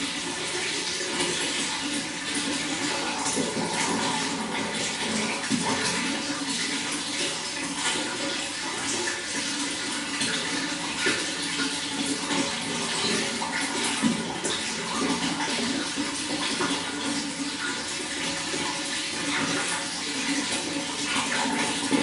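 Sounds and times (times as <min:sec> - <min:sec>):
running water rushing: 0:00.0 - 0:22.0.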